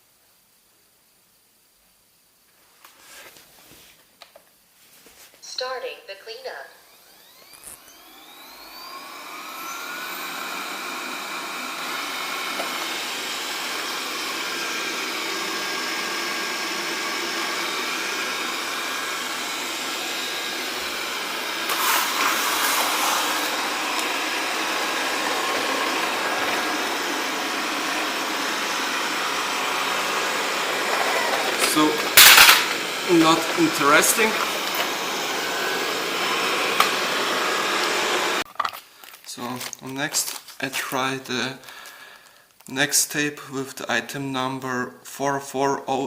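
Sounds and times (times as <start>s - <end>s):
robot vacuum motor whirring: 6.9s - 38.4s.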